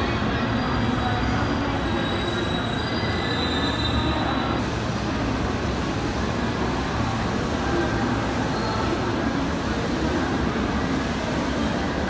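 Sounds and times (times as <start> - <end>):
train rumble and hiss: 0.0 - 12.0
high-pitched wheel squeal: 0.6 - 4.6.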